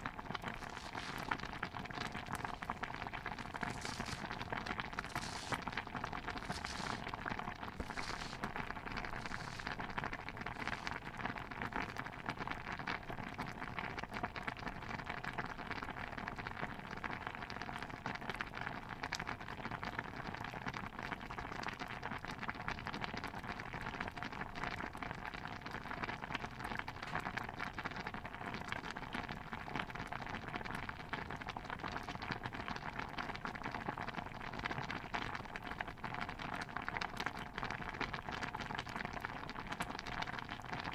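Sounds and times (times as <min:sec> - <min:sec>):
stew bubbling: 0:00.0 - 0:14.1, 0:24.4 - 0:40.9
soft hissy swishes: 0:05.1 - 0:05.6, 0:06.4 - 0:07.1, 0:07.8 - 0:08.5, 0:09.1 - 0:09.8.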